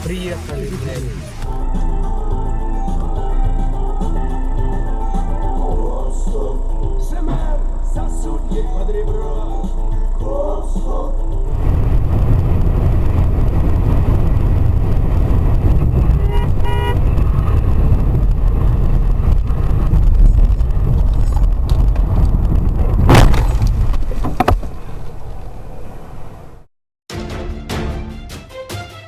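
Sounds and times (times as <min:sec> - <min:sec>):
car road and engine rumble: 0:00.0 - 0:26.7
car horn toot: 0:15.9 - 0:17.6
loud bang: 0:23.0 - 0:24.0.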